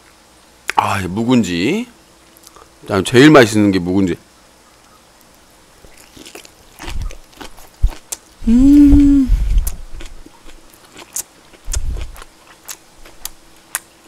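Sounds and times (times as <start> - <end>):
crunchy chewing: 4.8 - 8.5, 9.5 - 14.0
closed-mouth hum: 6.8 - 10.6, 11.6 - 12.3.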